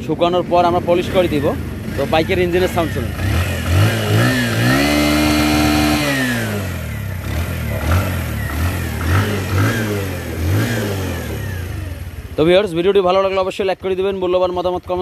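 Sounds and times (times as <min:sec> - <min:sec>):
motorcycle engine revving and idling: 0:00.0 - 0:15.0.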